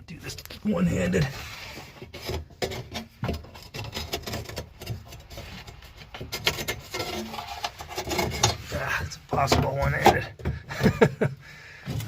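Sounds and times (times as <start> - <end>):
metal scraping on metal: 0.8 - 9.1.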